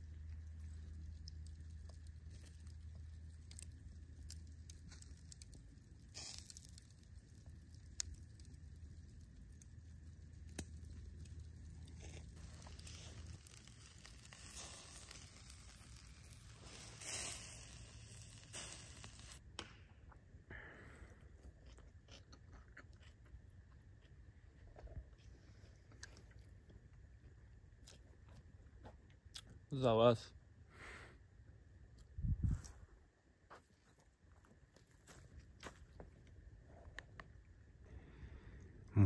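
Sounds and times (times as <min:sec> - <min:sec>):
faint rustling and crinkling: 0:00.0 - 0:19.4, 0:32.3 - 0:37.3.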